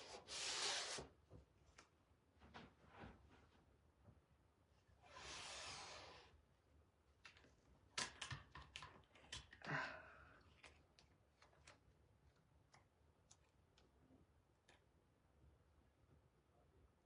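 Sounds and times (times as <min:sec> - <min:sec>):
small clicks and taps: 0:07.2 - 0:09.6.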